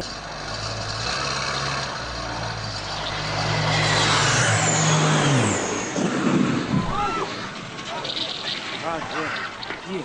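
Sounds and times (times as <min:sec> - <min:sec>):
engine passing by: 0:00.0 - 0:09.6
broad rushing noise: 0:02.3 - 0:10.0.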